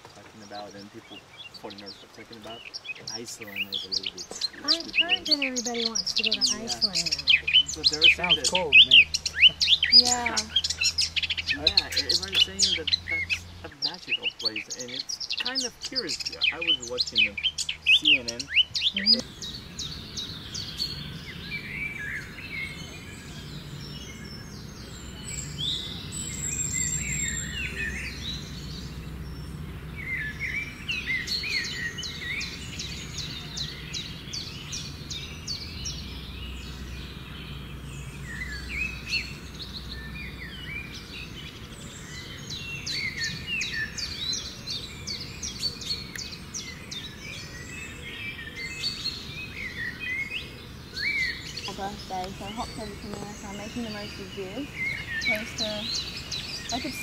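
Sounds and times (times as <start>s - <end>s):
birds chirping and trilling: 0.0s - 57.0s
steady low hum: 0.0s - 57.0s.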